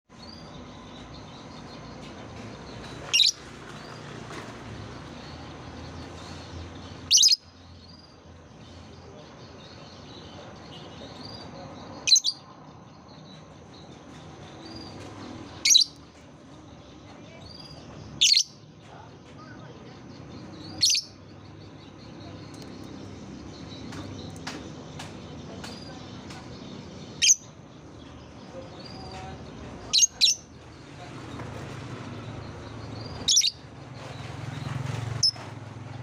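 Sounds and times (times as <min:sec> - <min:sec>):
faint bird chirping: 0:00.1 - 0:35.6
loud high-pitched bird chirps: 0:02.8 - 0:04.0, 0:06.2 - 0:08.1, 0:10.7 - 0:12.5, 0:14.7 - 0:16.1, 0:17.1 - 0:18.7, 0:19.6 - 0:22.9, 0:27.0 - 0:27.6, 0:28.6 - 0:30.7, 0:32.9 - 0:34.3.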